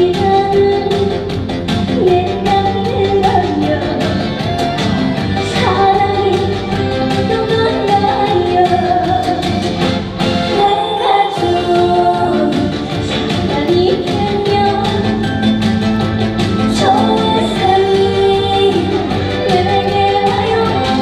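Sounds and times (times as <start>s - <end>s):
woman singing: 0.0s - 15.8s, 16.4s - 21.0s
band backing track: 0.0s - 21.0s
steady drum beat: 11.4s - 21.0s.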